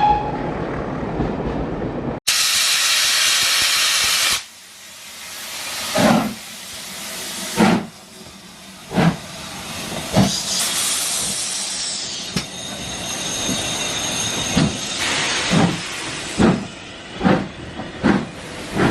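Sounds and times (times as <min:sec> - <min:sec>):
steam hiss: 0:02.3 - 0:12.4, 0:13.6 - 0:16.7
steam locomotive exhaust beats: 0:02.3 - 0:12.6, 0:13.4 - 0:18.9.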